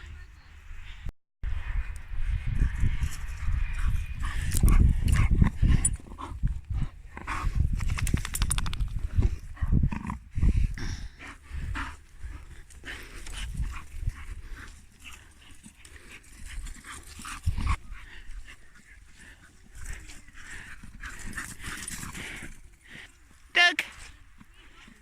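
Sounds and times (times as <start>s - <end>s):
dogs moving about: 7.8s - 9.1s, 18.7s - 23.4s.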